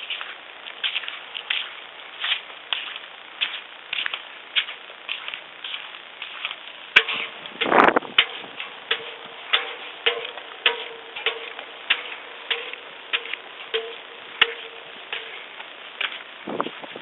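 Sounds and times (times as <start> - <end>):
sharp ticking clicks with ringing: 6.9 - 16.3.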